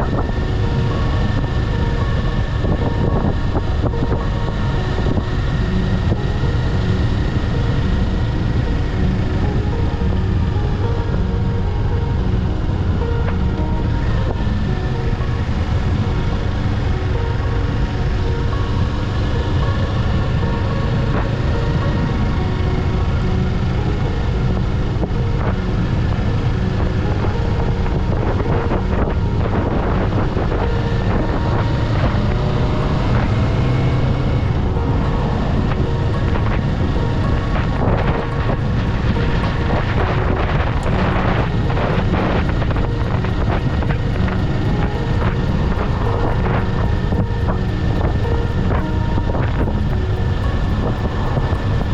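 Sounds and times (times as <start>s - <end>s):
wind noise: 0.0s - 51.9s
motorcycle engine running: 24.3s - 51.9s.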